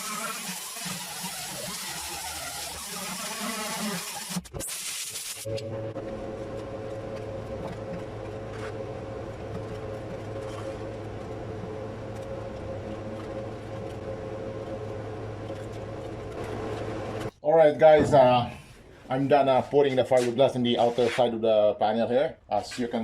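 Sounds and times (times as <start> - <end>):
steady machine hum: 5.4 - 19.6.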